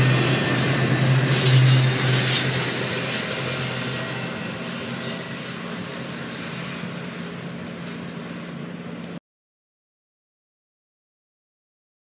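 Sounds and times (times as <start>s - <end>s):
high-pitched wheel squeal: 0.0s - 7.0s
train rolling on steel rails: 0.0s - 9.2s.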